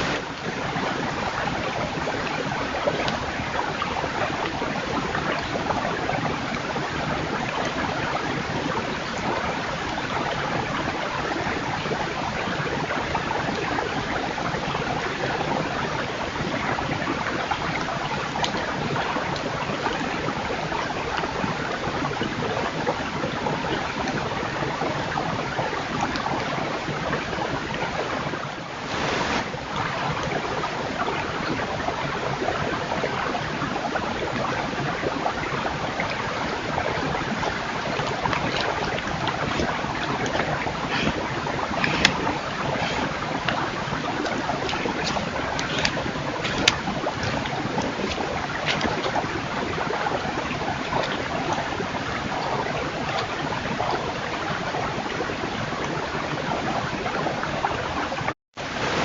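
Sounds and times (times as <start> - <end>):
steady rushing noise: 0.0 - 0.5, 28.6 - 29.7.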